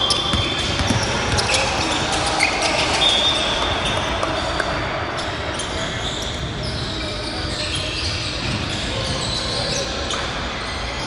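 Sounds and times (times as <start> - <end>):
ball bouncing on hardwood court: 0.0 - 2.5.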